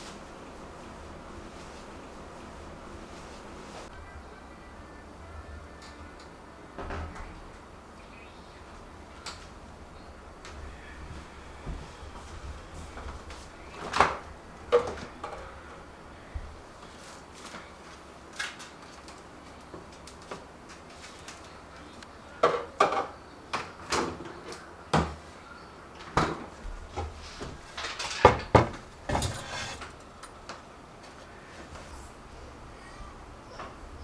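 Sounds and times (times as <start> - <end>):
dishes and utensils clinking: 27.8 - 30.0
drawers and cupboards knocking: 27.9 - 30.0.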